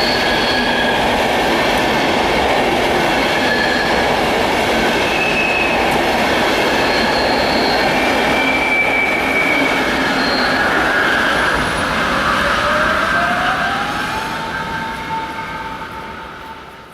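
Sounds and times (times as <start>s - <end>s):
train wheels rolling on rails: 0.0s - 16.9s
wheels squealing: 6.8s - 13.6s.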